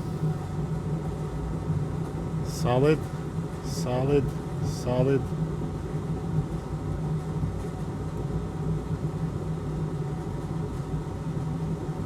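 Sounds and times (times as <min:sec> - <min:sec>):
low machine hum: 0:00.0 - 0:09.4.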